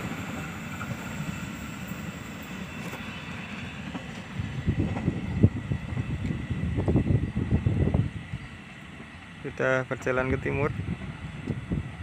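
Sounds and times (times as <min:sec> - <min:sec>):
passenger train rumbling: 0:00.0 - 0:12.0
wind buffeting microphone: 0:03.8 - 0:08.6, 0:10.3 - 0:12.0.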